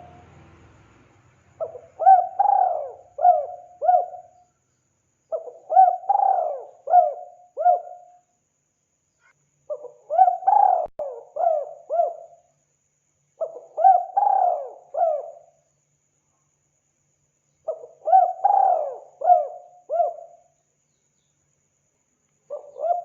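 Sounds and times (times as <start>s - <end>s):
dove cooing: 1.6s - 4.4s, 5.3s - 8.1s, 9.7s - 12.4s, 13.4s - 15.5s, 17.7s - 20.4s, 22.5s - 23.0s.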